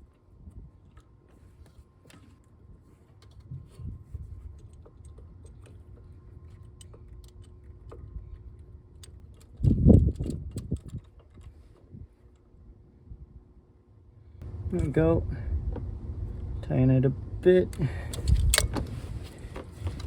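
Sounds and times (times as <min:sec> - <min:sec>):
ignition coil clicking and rattling: 0:03.1 - 0:12.6, 0:17.5 - 0:20.0.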